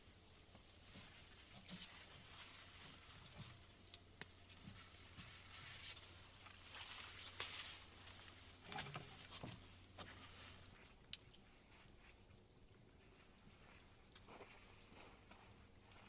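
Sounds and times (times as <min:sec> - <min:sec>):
rustling and scraping of handling: 0:00.0 - 0:16.0.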